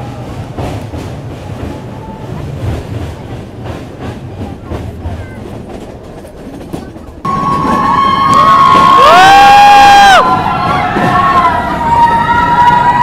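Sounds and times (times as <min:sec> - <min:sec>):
train rumbling along track: 0:00.0 - 0:13.0
wheels clicking over rail joints: 0:00.0 - 0:13.0
loud steady high tone: 0:07.3 - 0:08.9.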